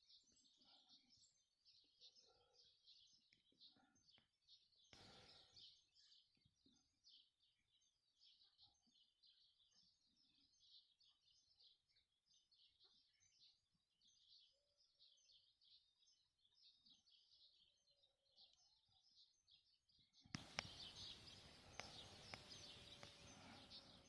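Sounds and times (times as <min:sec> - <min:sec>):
birds chirping: 0:00.0 - 0:24.0
sharp clicks: 0:20.3 - 0:23.8.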